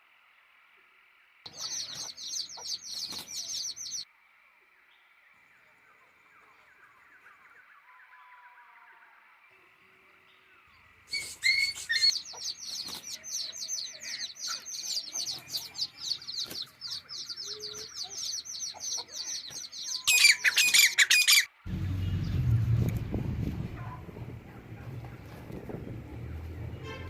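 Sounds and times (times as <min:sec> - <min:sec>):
bird chirping: 0:01.5 - 0:04.0, 0:10.2 - 0:22.9
low rumble: 0:21.7 - 0:26.8.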